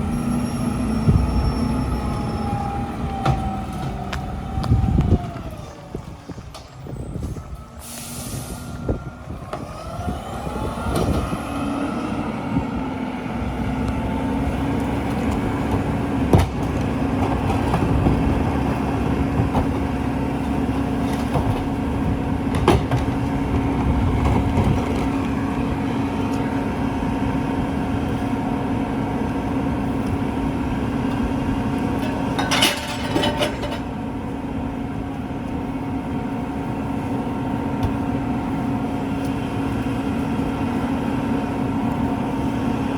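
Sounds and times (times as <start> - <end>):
air hiss: 7.8 - 8.8
truck diesel engine revving: 8.7 - 32.0.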